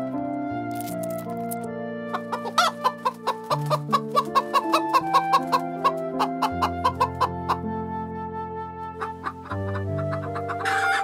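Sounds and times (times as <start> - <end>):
background music with sustained notes: 0.0 - 11.0
hens clucking: 2.1 - 7.6, 9.0 - 11.0.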